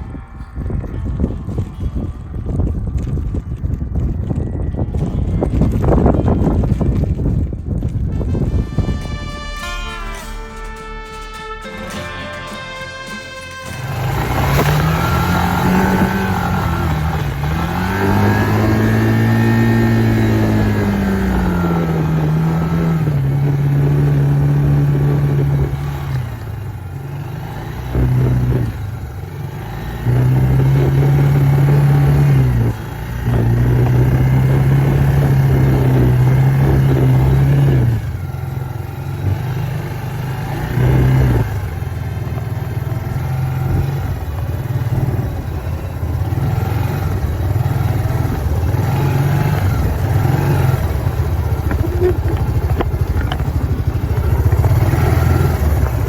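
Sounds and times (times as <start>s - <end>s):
off-road vehicle engine revving: 12.0s - 56.0s.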